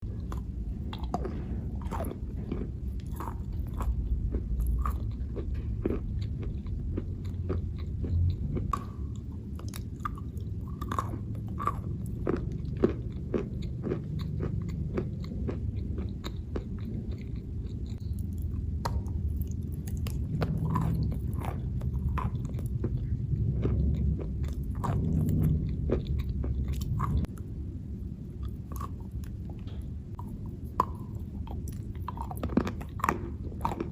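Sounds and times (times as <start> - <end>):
person chewing chalk crunching: 0.0 - 27.5, 28.3 - 33.9
low rumble: 0.0 - 33.9.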